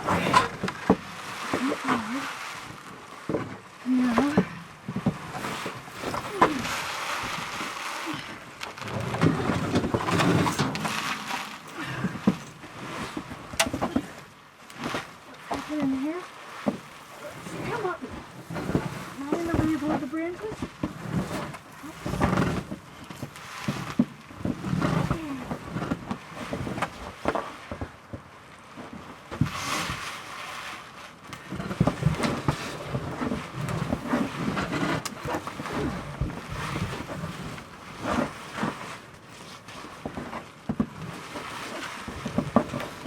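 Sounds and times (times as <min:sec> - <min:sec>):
branches rustling: 0:00.0 - 0:27.7
person grunting and breathing: 0:11.7 - 0:12.4.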